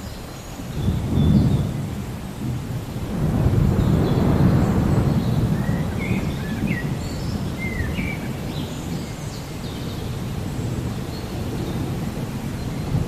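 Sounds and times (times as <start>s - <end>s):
birds chirping: 0.0s - 2.5s, 3.3s - 13.0s
steady rain: 0.0s - 13.0s
thunder rolling: 0.8s - 9.2s.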